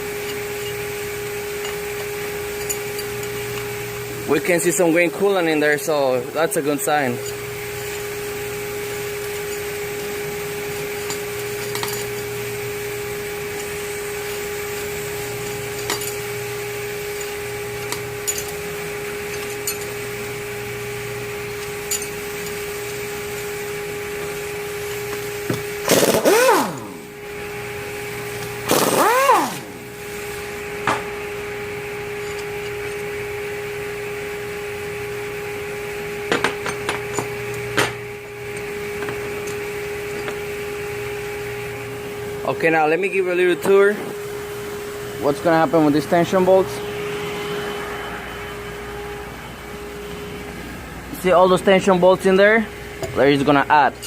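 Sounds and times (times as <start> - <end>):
power tool spinning: 0.0 - 30.6
steady hum: 0.0 - 54.0.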